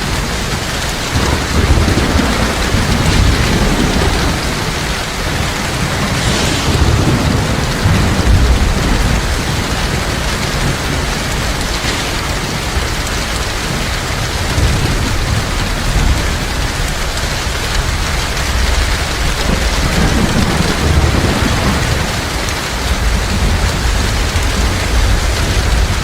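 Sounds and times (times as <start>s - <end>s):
heavy rain: 0.0s - 26.0s
low rumble of thunder: 0.0s - 26.0s.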